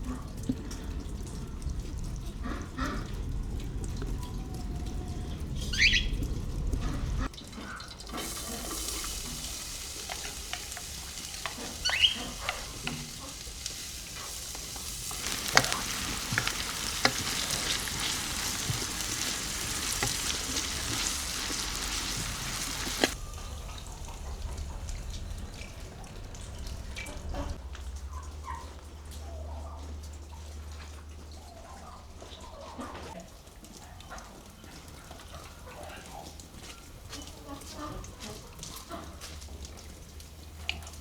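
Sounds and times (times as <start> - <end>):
food sizzling in hot oil: 8.1 - 24.0
utensil clicking on pan: 8.2 - 23.2.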